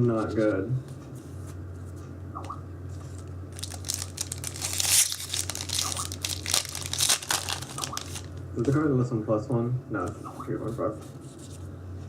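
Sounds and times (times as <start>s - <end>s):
steady low hum: 0.0s - 12.0s
foil wrapper tearing and crinkling: 3.5s - 8.4s.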